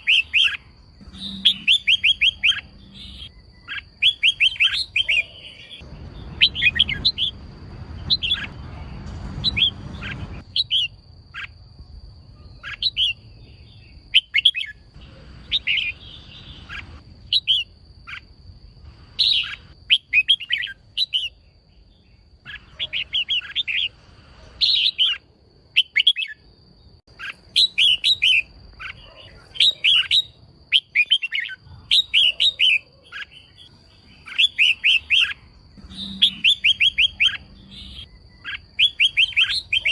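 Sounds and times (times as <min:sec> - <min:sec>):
bird chirping in quick bursts: 0:00.0 - 0:07.4, 0:19.1 - 0:21.4, 0:22.5 - 0:24.0, 0:27.1 - 0:39.9
low rumble: 0:05.8 - 0:10.6.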